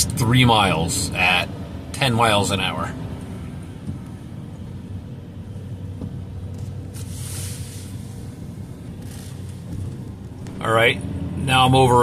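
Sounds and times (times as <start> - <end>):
car engine and road rumble: 0.0 - 12.0
brief hiss: 6.9 - 8.3.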